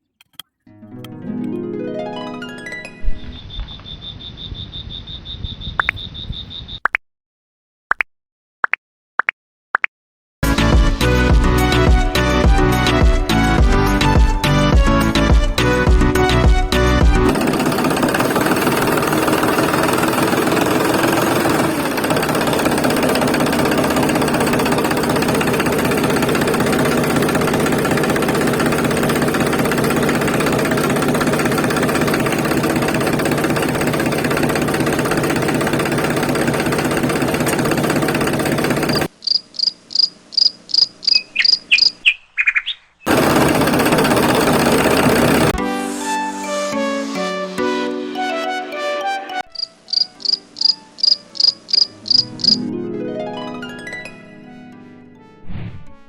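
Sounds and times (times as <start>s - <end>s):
small electric motor buzzing: 49.6s - 52.6s.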